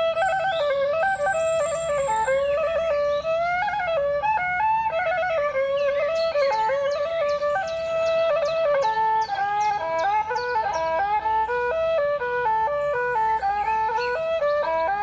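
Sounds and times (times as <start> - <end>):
woodwind melody with trills: 0.0 - 15.0.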